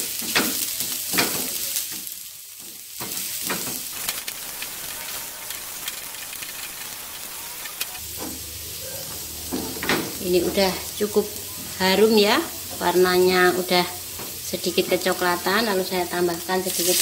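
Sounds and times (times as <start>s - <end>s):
shallots sizzling in hot oil: 0.0s - 17.0s
wooden spatula scraping a pan: 2.7s - 8.4s.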